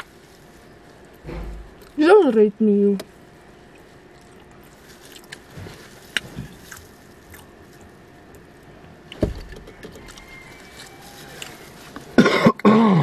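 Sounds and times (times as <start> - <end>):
quiet chewing: 3.0 - 12.2.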